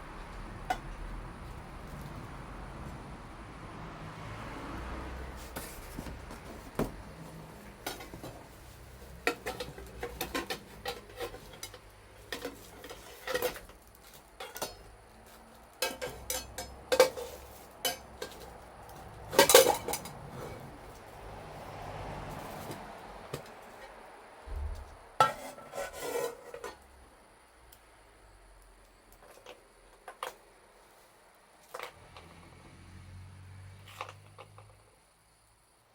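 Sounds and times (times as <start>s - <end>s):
dishes and cutlery clinking: 7.7s - 13.7s, 14.4s - 14.9s, 15.8s - 20.6s.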